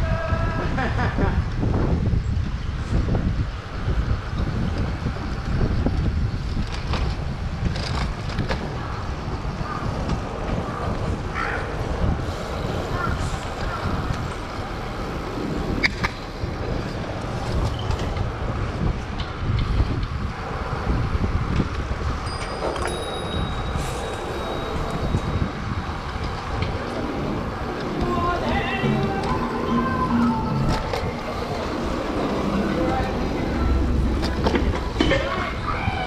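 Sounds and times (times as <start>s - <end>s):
rumble of passing vehicles: 0.0s - 36.0s
wind buffeting microphone: 0.0s - 36.0s
thin high tones: 22.2s - 36.0s.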